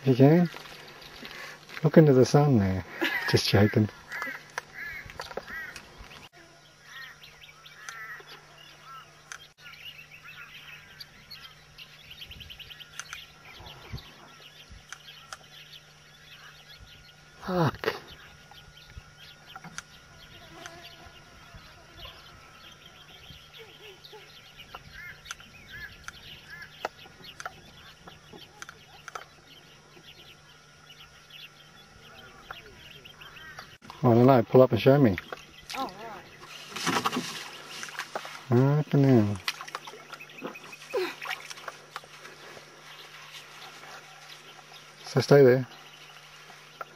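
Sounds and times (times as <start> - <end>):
birds chirping: 0.0 - 46.9.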